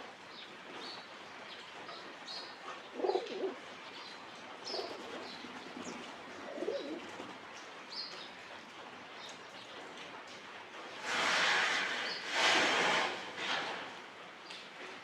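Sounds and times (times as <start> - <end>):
pigeons cooing: 2.7 - 3.7, 4.7 - 5.4, 6.3 - 7.1.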